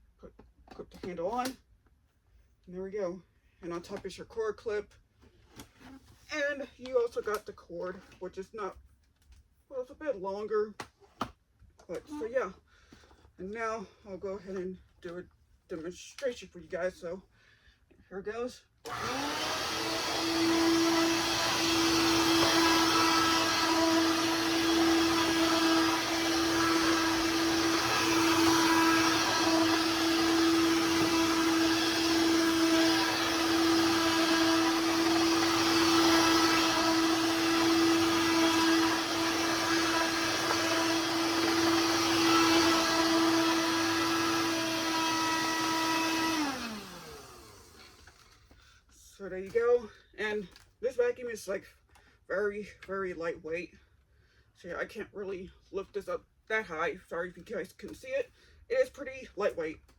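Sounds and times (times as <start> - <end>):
vacuum winding down: 18.9 - 48.1
vacuum cleaner motor whine: 18.9 - 48.2.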